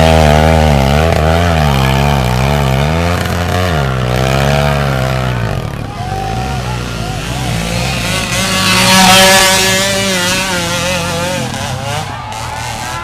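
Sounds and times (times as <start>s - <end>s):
motorcycle engine revving hard: 0.0s - 13.0s.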